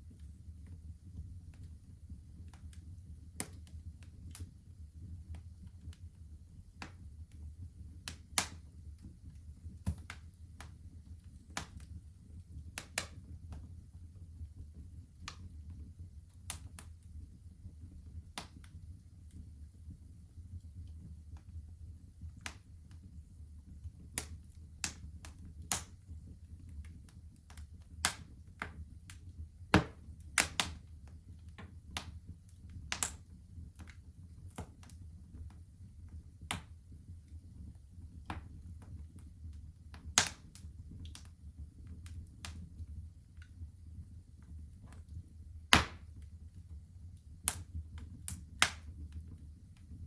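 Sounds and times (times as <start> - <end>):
wood fire crackling: 0.0 - 50.0.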